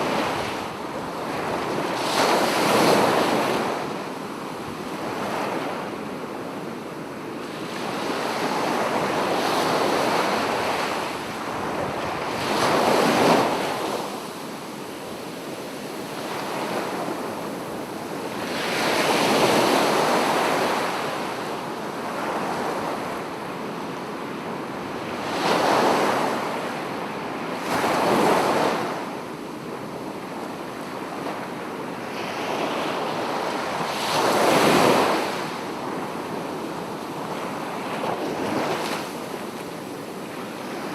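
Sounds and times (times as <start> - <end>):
sea waves breaking on beach: 0.0 - 6.0, 7.4 - 23.2, 31.5 - 40.9.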